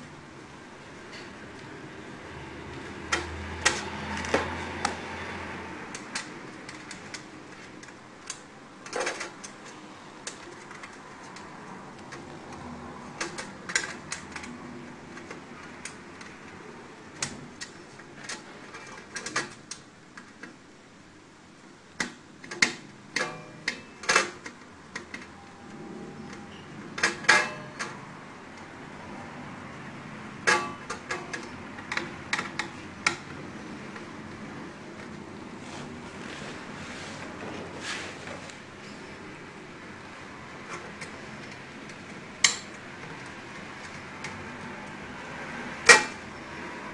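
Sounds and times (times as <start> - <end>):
tools clicking and tapping: 30.4 - 33.4, 40.7 - 45.0.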